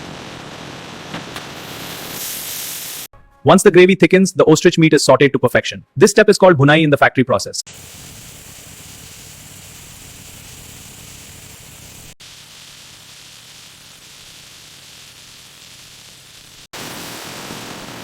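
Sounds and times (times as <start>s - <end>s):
meat sizzling in a pan: 1.5s - 3.1s, 7.7s - 18.0s.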